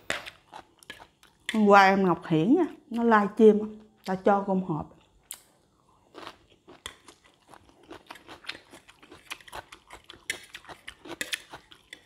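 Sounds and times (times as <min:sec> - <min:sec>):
person chewing crunchy food: 0:00.0 - 0:01.6, 0:05.0 - 0:12.0.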